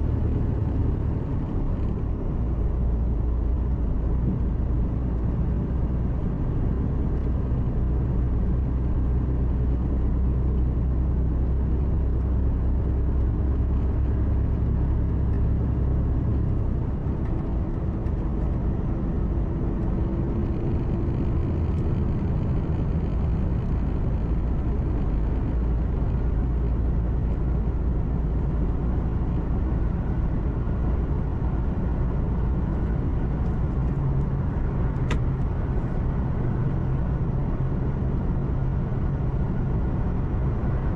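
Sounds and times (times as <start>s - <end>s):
road noise inside cab: 0.0s - 40.9s
truck diesel engine drone: 0.0s - 40.9s
sharp click: 35.0s - 35.4s.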